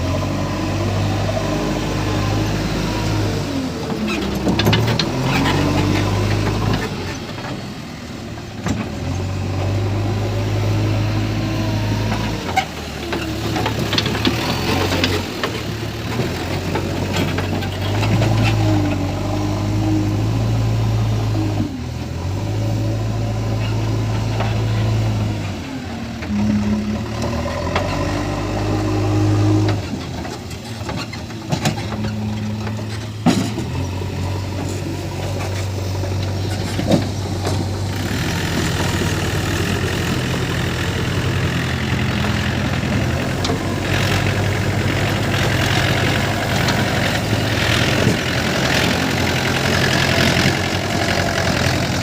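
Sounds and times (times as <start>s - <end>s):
diesel engine revving: 0.0s - 52.0s
metal clanks and rattles: 29.7s - 39.2s.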